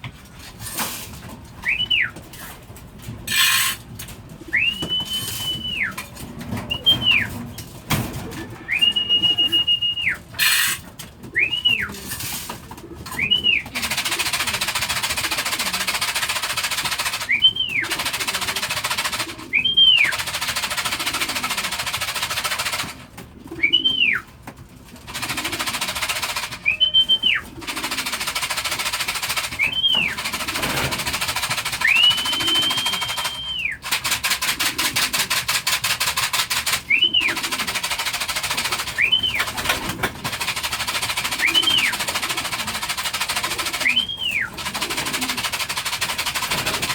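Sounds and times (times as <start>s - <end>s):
person whistling short calls: 4.6s - 6.0s, 8.6s - 10.6s, 11.4s - 11.9s, 26.6s - 27.4s, 29.6s - 30.2s, 31.8s - 33.8s, 43.8s - 44.5s.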